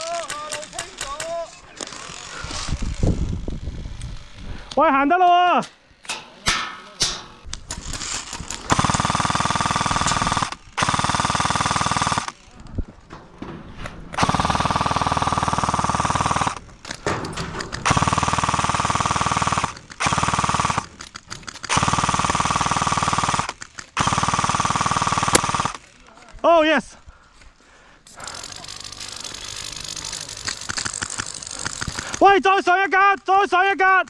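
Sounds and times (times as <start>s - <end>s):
toy machine gun firing bursts: 0.0s - 2.7s, 7.4s - 12.5s, 14.2s - 16.7s, 17.8s - 25.9s, 28.1s - 32.4s.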